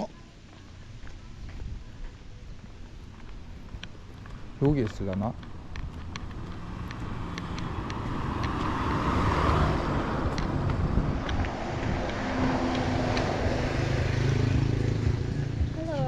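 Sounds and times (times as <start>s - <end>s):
street noise: 0.0s - 16.0s
engine running close by: 4.2s - 16.0s.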